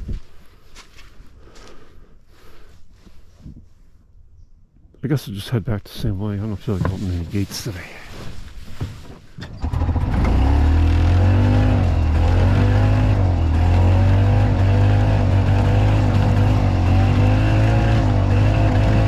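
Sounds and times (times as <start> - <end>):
golf cart engine running: 9.4 - 19.0.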